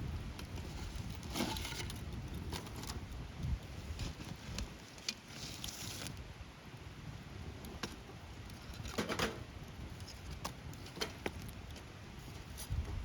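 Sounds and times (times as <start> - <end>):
low steady rumble: 0.0 - 4.2
wood fire crackling and popping: 0.0 - 13.0.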